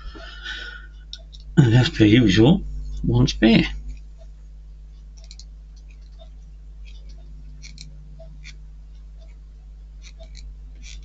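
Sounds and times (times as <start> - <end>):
steady low hum: 0.0 - 11.0
soft repeating tick: 0.9 - 1.6, 3.9 - 9.4.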